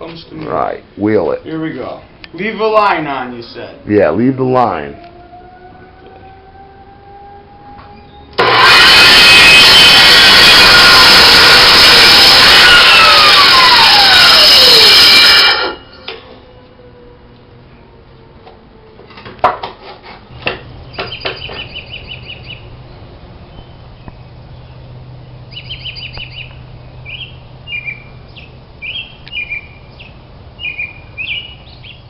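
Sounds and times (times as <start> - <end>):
steady low hum: 0.0 - 19.2, 20.0 - 32.0
small bird trilling and chirping: 20.8 - 32.0.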